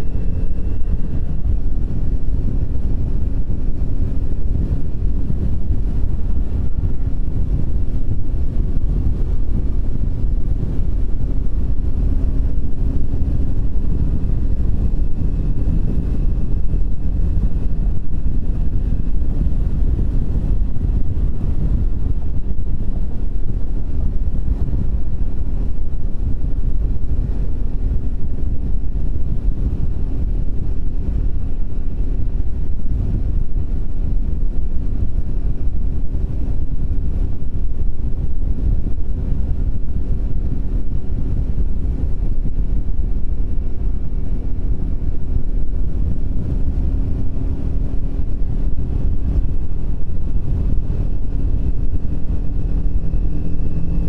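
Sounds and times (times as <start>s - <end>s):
motorcycle engine running: 0.0s - 54.0s
wind buffeting microphone: 0.0s - 54.0s.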